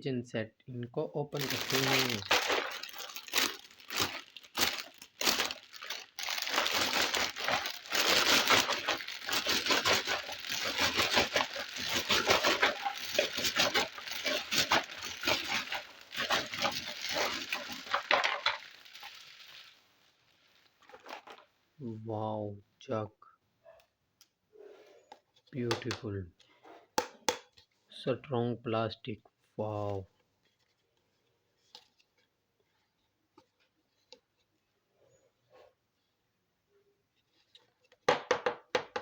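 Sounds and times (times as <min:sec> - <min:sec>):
packaging crinkling and tearing: 0:01.3 - 0:19.8, 0:20.4 - 0:21.5.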